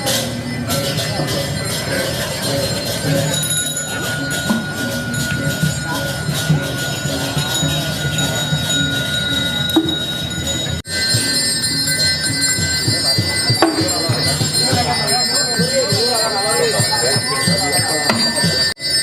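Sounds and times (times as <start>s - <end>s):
metal bells ringing: 0.0s - 19.0s
murmur of voices: 0.0s - 19.0s.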